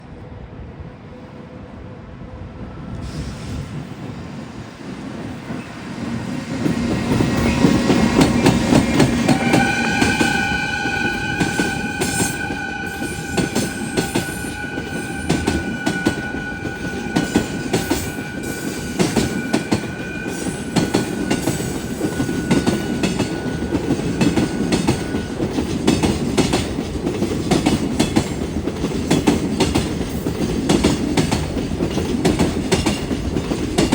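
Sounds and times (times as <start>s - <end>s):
train wagons rumbling and clacking: 2.6s - 33.9s
train horn long blast: 8.6s - 25.4s.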